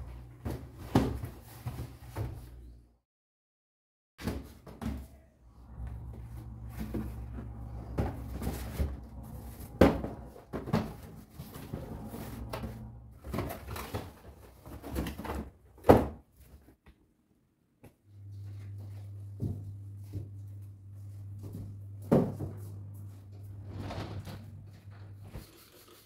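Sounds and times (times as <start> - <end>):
steady low hum: 5.4 - 14.8, 18.0 - 25.4
knocks and thuds of objects: 22.0 - 22.6.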